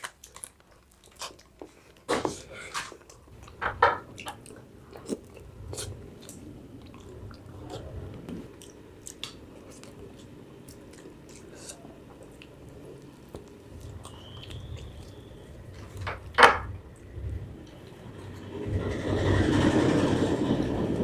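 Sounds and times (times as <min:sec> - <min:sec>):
chewing frozen ice cream: 0:00.0 - 0:16.0
mouth clicks and smacks: 0:02.7 - 0:16.1.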